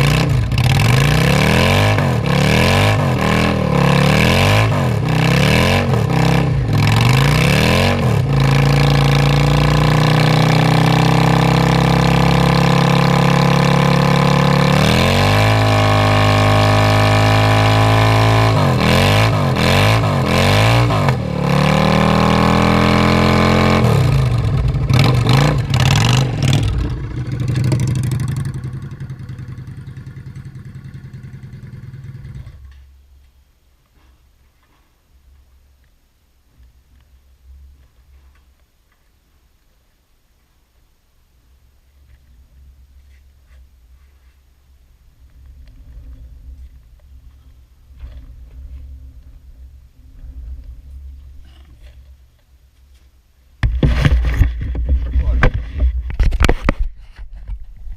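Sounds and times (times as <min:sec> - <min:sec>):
car engine revving: 0:00.0 - 0:32.1.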